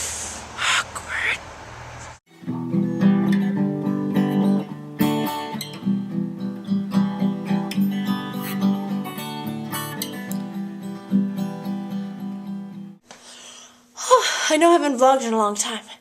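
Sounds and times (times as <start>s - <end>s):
acoustic guitar music: 2.3s - 13.0s.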